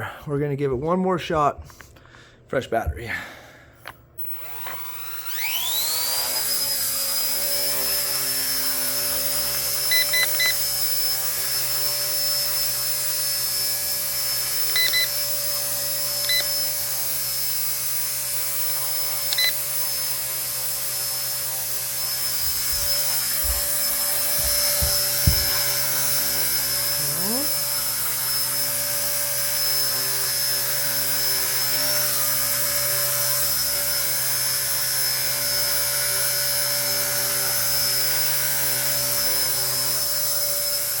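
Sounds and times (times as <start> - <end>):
rc helicopter motor whine: 4.2 - 41.0
low thumps: 22.4 - 25.8.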